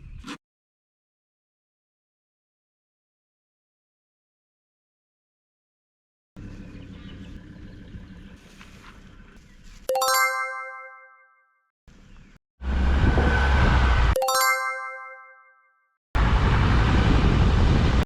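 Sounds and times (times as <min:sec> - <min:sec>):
bell-like chime: 0:09.9 - 0:11.4, 0:14.2 - 0:15.8.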